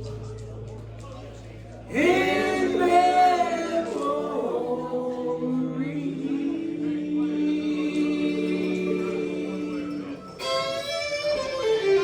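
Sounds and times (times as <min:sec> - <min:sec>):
vocal group singing in harmony: 0:01.9 - 0:10.8.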